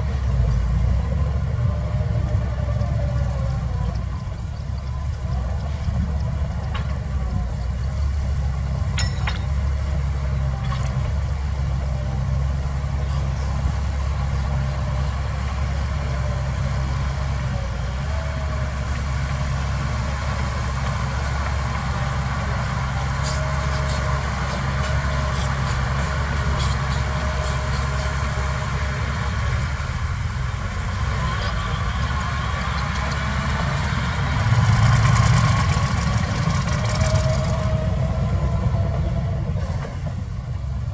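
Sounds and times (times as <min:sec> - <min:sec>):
heavy diesel engine droning: 0:00.0 - 0:40.9
metal clanks: 0:08.9 - 0:09.7.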